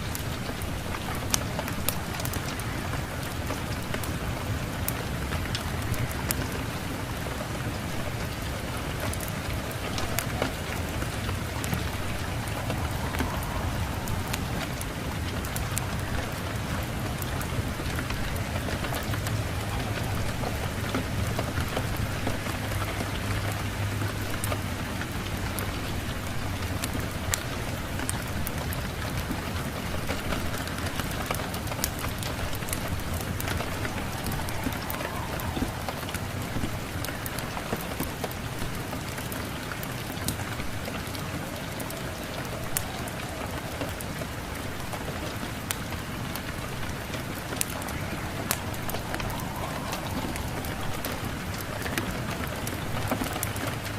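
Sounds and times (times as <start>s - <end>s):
rain hiss: 0.0s - 53.9s
low rumble: 9.9s - 18.5s.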